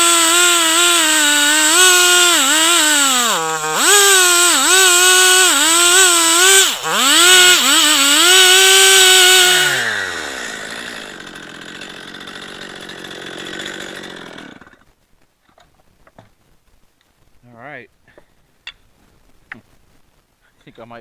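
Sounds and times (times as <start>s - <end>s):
chainsaw cutting through log: 0.0s - 14.9s.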